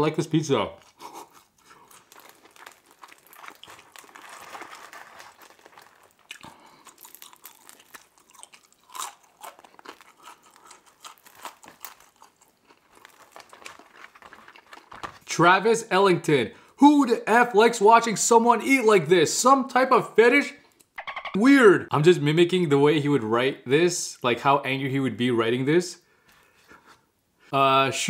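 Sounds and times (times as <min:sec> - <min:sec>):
biting and chewing pizza: 0:00.8 - 0:15.3
crust crunching: 0:00.8 - 0:15.3.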